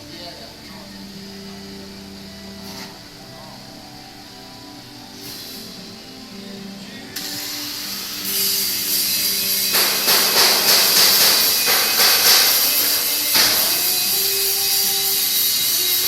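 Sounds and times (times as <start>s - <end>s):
welding arc hissing and crackling: 5.1s - 6.1s, 7.2s - 16.0s.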